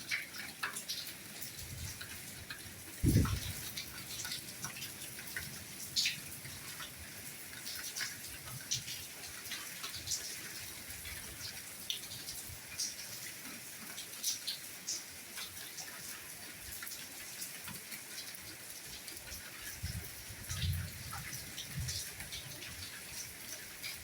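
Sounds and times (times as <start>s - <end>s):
light rain hissing: 0.0s - 24.0s
raindrops tapping: 0.1s - 6.2s.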